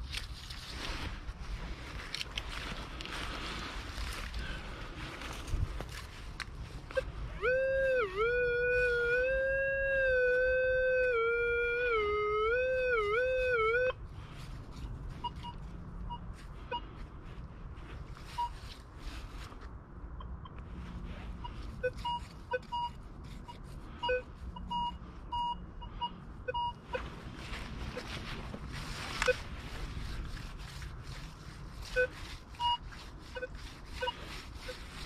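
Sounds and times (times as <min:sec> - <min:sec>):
coil scraping and crunching ground: 0:00.0 - 0:11.8, 0:12.8 - 0:19.8, 0:20.6 - 0:25.5, 0:26.5 - 0:35.0
loud long wavering wail: 0:07.2 - 0:14.0
metal detector two-tone beeps: 0:15.2 - 0:16.9, 0:18.3 - 0:18.6, 0:21.8 - 0:27.0, 0:31.9 - 0:34.2.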